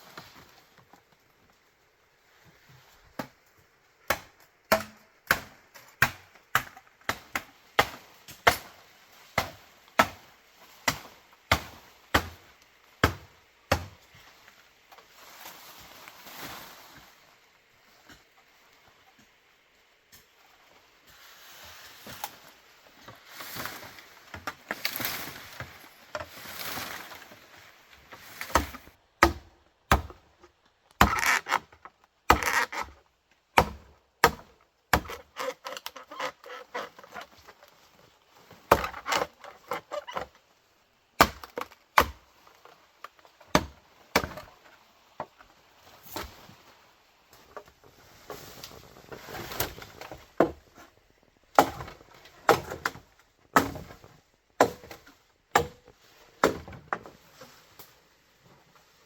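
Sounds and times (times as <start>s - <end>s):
blade chopping bamboo: 4.1s - 8.8s, 9.4s - 12.4s, 13.0s - 13.9s, 28.4s - 30.2s, 31.0s - 33.0s, 33.6s - 37.2s, 38.7s - 40.3s, 41.2s - 42.2s, 43.5s - 44.5s, 51.5s - 54.0s, 54.6s - 56.8s.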